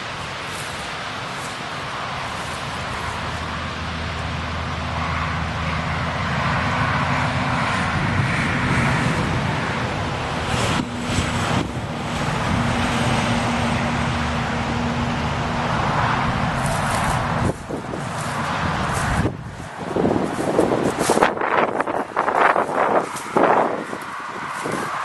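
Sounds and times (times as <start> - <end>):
engine hum: 0.0 - 25.0
wind on microphone: 6.3 - 25.0.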